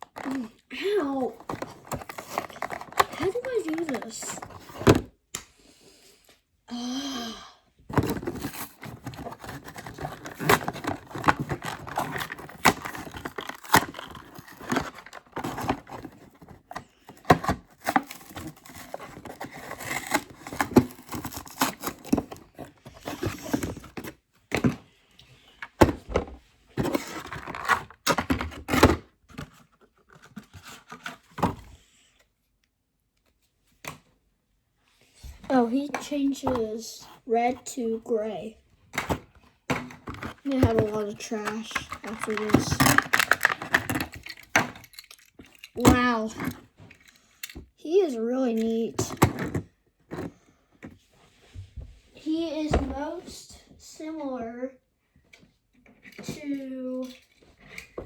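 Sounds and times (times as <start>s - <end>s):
plastic packaging being torn open: 8.0s - 16.0s.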